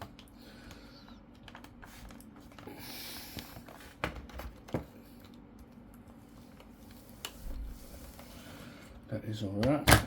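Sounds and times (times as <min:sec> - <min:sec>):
plastic sliding rustle: 0:06.4 - 0:08.9.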